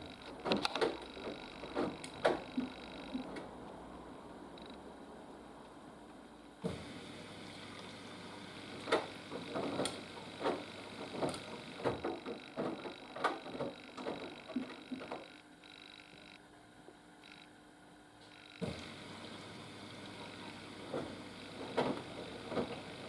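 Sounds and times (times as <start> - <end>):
laundry tumbling in washing machine: 0.0 - 3.7, 6.6 - 15.3, 18.6 - 23.0
faint steady hum: 0.0 - 23.0.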